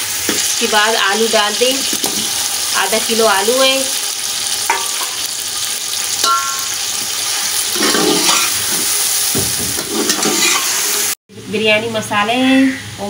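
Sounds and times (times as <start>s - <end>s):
hot oil sizzling in a pot: 0.0s - 11.2s
spoon stirring: 7.8s - 9.0s, 9.8s - 10.9s.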